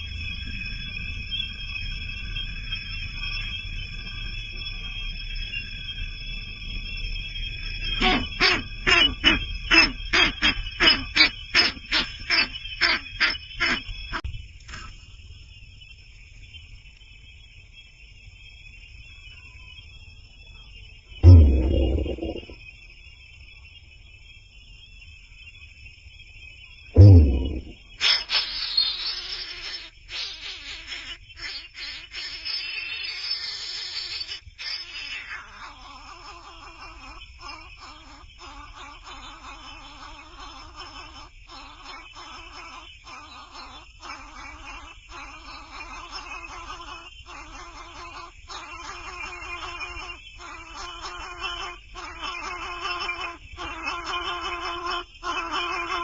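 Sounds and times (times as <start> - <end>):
baby bird begging calls: 8.0 - 13.8, 27.0 - 56.0
high-pitched whine: 21.2 - 22.6, 27.0 - 27.9.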